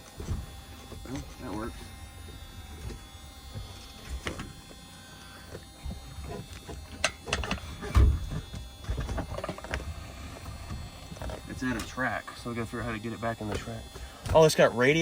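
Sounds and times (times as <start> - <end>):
thump: 7.8 - 9.4.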